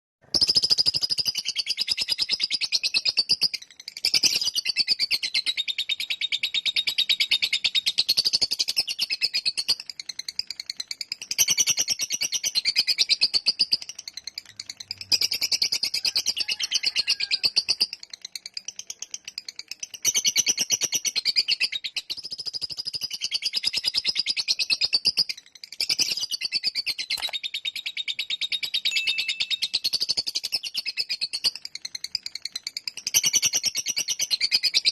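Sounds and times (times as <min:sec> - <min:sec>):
lovebird chattering trill: 0:20.0 - 0:31.6.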